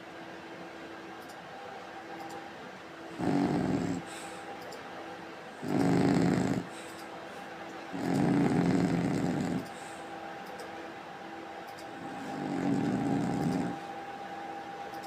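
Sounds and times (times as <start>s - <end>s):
dog snoring: 3.1s - 4.4s, 5.6s - 6.8s, 7.9s - 9.7s, 12.0s - 13.8s.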